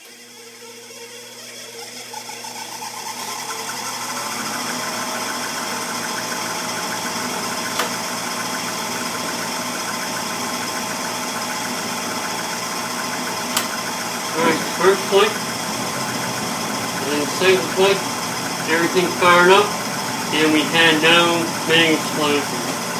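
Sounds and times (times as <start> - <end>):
furnace motor humming: 0.0 - 22.9
sharp ignition click: 13.5 - 13.7.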